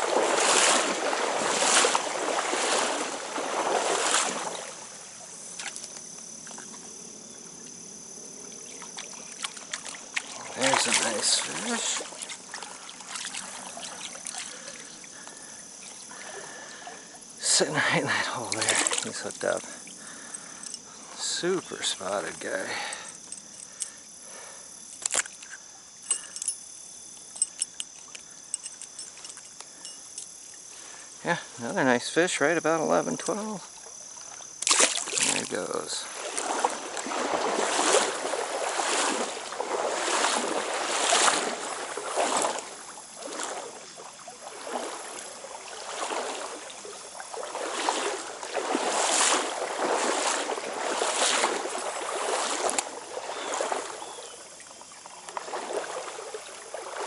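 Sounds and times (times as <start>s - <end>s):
crickets and insects trilling: 0.0s - 57.0s
stream water sloshing: 0.0s - 57.0s
thin steady high tone: 10.4s - 34.3s
fishing tackle clicks and knocks: 24.9s - 26.6s, 27.2s - 30.3s.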